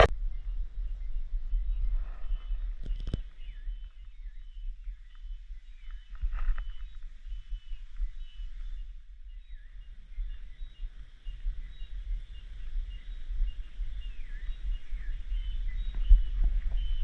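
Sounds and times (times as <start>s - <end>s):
low rumble: 0.0s - 5.1s
cicadas chorus: 0.0s - 17.0s.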